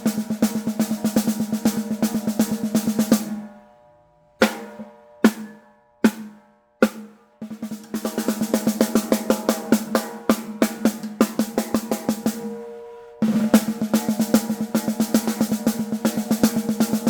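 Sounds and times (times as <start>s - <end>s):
fast snare drum strokes: 0.0s - 3.5s, 4.4s - 17.0s
single snare hits ringing: 4.4s - 8.5s.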